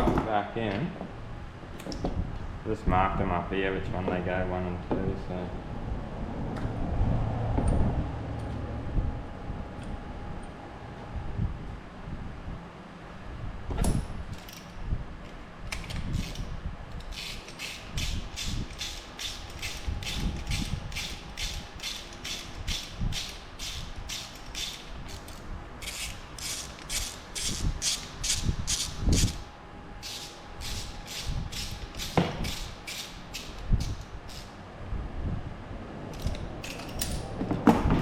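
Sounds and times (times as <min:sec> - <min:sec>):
ratchet wrench clicking: 0:17.0 - 0:29.4, 0:30.0 - 0:34.5.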